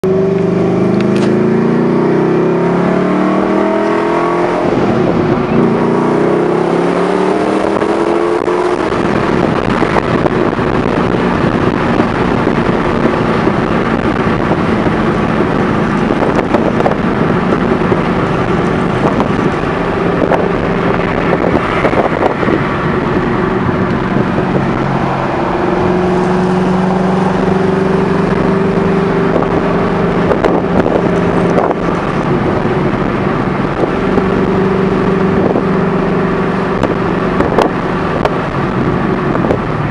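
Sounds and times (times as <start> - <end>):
car engine: 0.0 - 39.9
road noise: 0.0 - 39.9.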